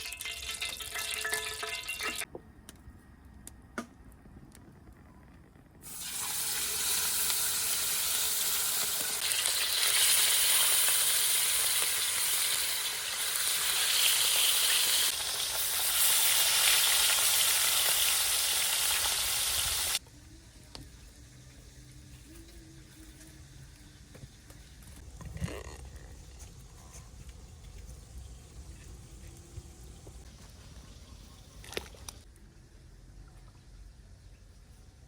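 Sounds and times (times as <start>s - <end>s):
food sizzling in hot oil: 0.0s - 2.3s, 5.8s - 20.0s.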